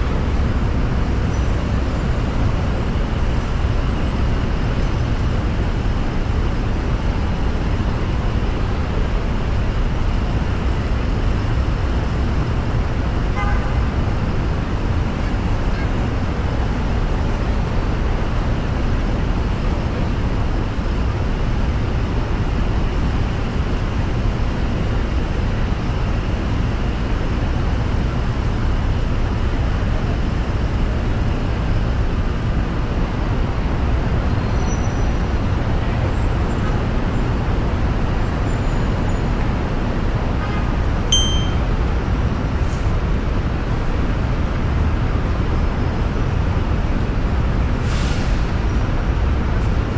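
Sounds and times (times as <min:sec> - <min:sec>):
car driving road noise: 0:00.0 - 0:49.9
faint high beep: 0:41.1 - 0:41.7.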